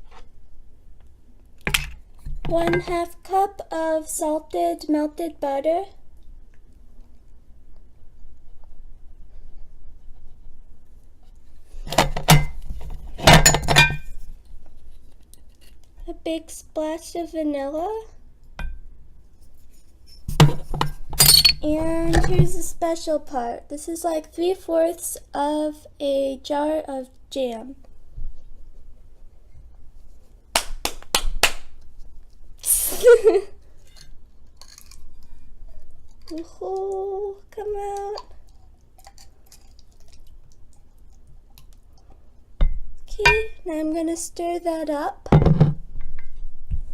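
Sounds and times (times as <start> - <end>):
glass jar knocking: 42.6 - 43.6.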